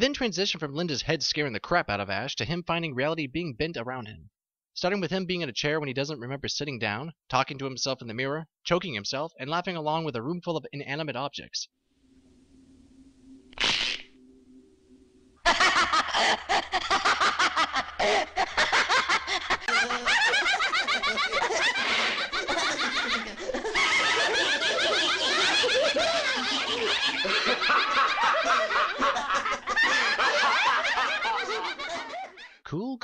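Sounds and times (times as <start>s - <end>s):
many voices laughing wildly: 15.5s - 32.6s.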